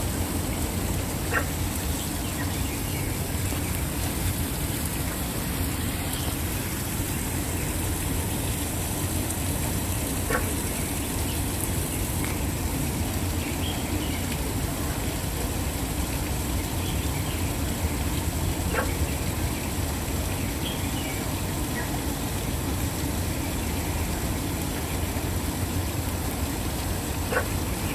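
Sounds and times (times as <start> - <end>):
waterfall pouring: 0.0 - 27.9.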